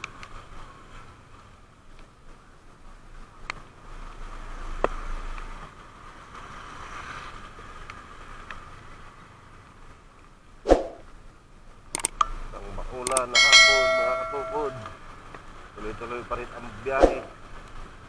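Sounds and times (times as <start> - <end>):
hiss of wind and wet road: 0.0 - 18.0
motorcycle low rumble: 7.4 - 18.0
sharp ticks: 13.0 - 13.6.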